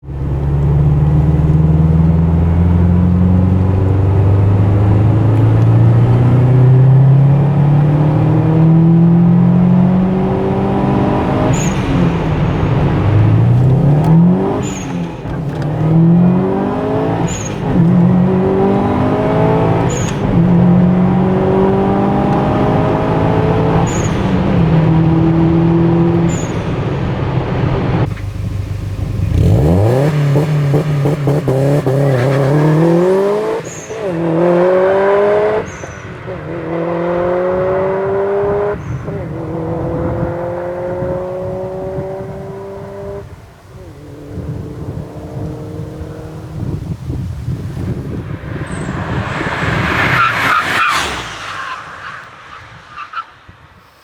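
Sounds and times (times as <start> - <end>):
turbocharged car engine revving: 0.0 - 52.8
high turbo chirp: 47.6 - 53.1.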